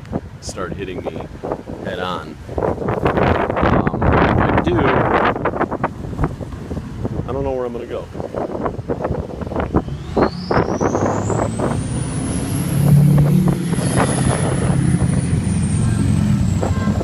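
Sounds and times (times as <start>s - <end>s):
high whine: 9.6s - 17.0s
motorcycle engines running: 12.9s - 17.0s.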